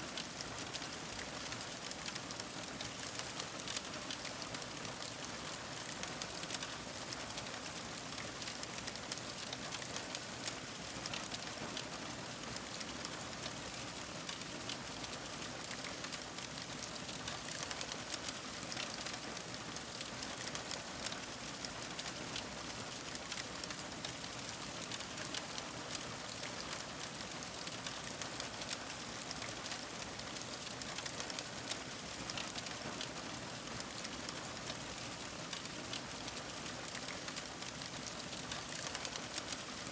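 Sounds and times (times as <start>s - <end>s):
wood fire crackling: 30.4s - 32.6s, 36.2s - 39.6s.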